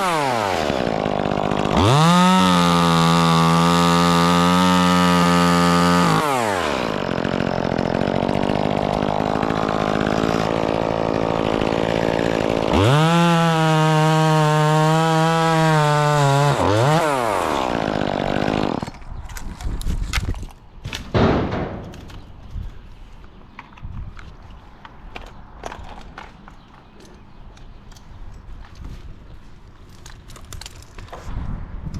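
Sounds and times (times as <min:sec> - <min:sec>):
chainsaw revving: 0:00.0 - 0:19.0
knocks and clatters: 0:20.1 - 0:22.3.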